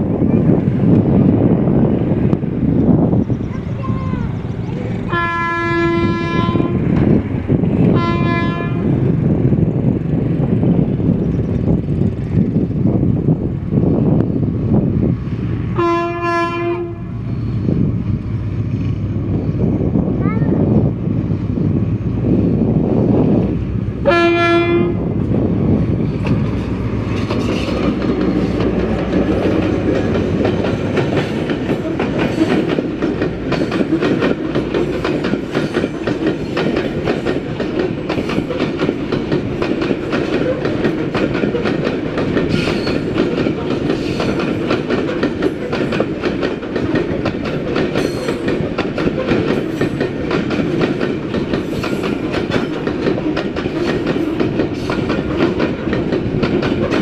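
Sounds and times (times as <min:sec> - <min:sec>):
wheels clacking over rail joints: 0:01.9 - 0:13.6, 0:23.4 - 0:57.0
locomotive horn blast: 0:05.1 - 0:06.9, 0:07.9 - 0:09.0, 0:15.8 - 0:17.2, 0:24.0 - 0:25.1.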